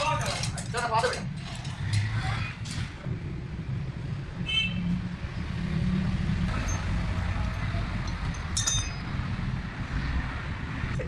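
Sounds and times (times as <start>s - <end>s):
metallic clink: 6.5s - 9.2s.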